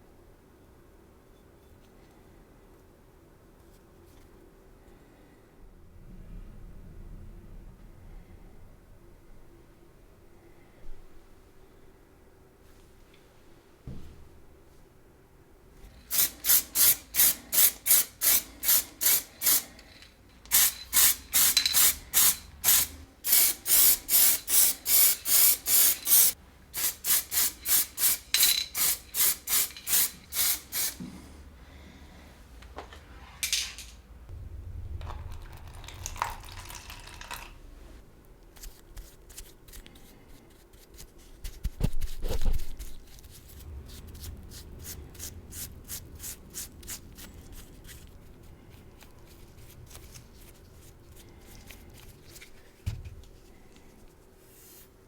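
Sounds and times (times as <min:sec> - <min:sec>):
low thump: 0:34.3 - 0:36.4.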